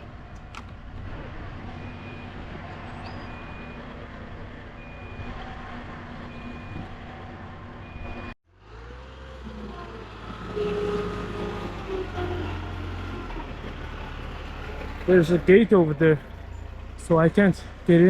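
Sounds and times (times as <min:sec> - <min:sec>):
truck engine running: 0:00.0 - 0:18.0
reversing alarm beeping: 0:03.0 - 0:03.9, 0:06.3 - 0:06.9, 0:07.8 - 0:08.4.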